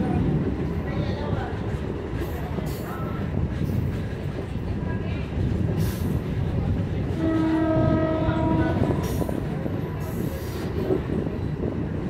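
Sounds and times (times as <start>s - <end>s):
train running with low rumble: 0.0s - 12.0s
train horn held note: 7.1s - 9.0s.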